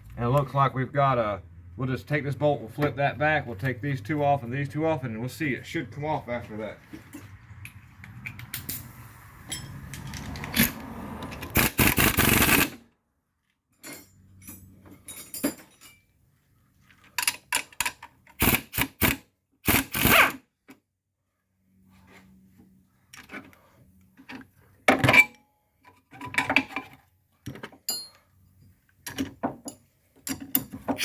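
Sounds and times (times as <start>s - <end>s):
metallic clinks of tools and bolts: 7.1s - 11.7s, 13.7s - 16.1s, 27.8s - 28.2s
steady tool noise: 11.4s - 12.8s, 18.4s - 20.4s.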